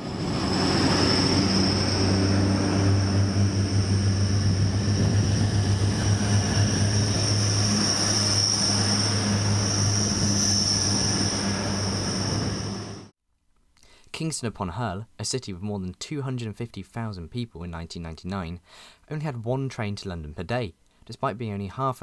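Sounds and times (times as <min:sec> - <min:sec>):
diesel train engine drone: 0:00.0 - 0:13.1
high-pitched whine: 0:00.0 - 0:13.1.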